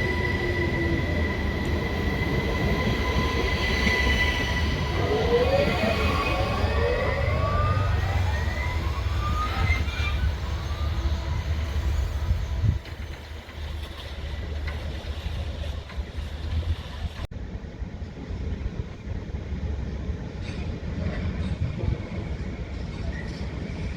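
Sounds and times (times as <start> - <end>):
rising whining tones: 0.0 - 12.6
electric train rumble: 0.0 - 23.9.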